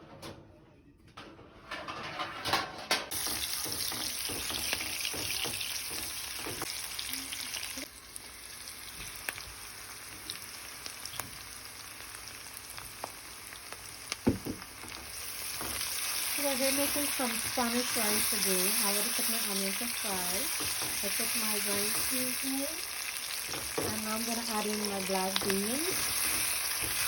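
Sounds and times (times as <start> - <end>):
onions sizzling in oil: 3.1 - 27.0
spoon stirring and knocking pot: 3.2 - 6.7, 20.2 - 22.3, 25.3 - 27.0.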